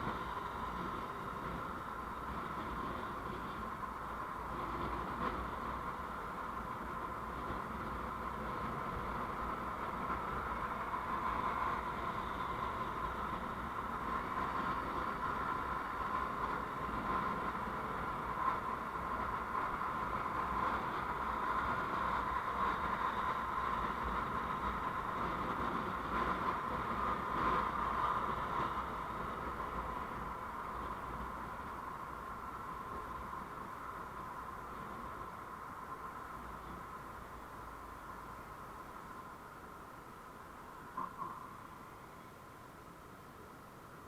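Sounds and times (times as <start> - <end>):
vehicle road noise: 0.0 - 44.0.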